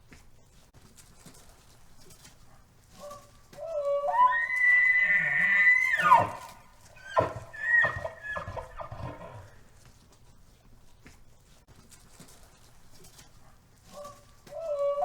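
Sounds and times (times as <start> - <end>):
animal calls falling in pitch: 3.6 - 9.5, 14.5 - 15.0.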